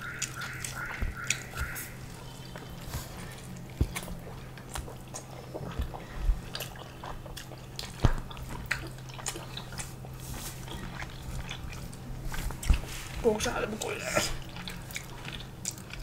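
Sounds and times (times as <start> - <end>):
faint low hum: 0.0 - 16.0
people chewing: 0.0 - 16.0
fingers clicking in food: 0.1 - 2.8.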